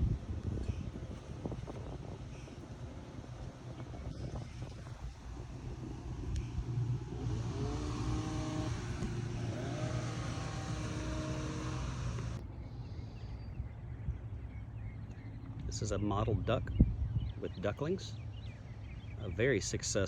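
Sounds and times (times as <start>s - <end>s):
vehicle engine humming: 0.0s - 12.4s
rising whining tones: 5.3s - 12.4s.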